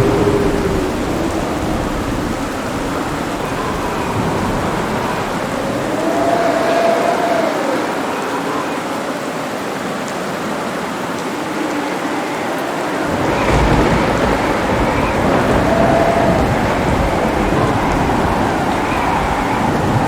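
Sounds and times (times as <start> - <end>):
deep rumble of thunder: 0.0 - 7.4, 13.0 - 20.0
heavy rain: 0.0 - 20.0.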